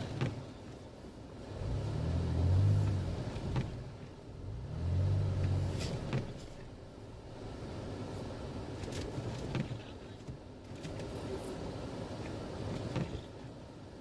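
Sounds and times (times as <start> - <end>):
wind and road noise: 0.0 - 14.0
vehicle engine revving: 1.5 - 7.8.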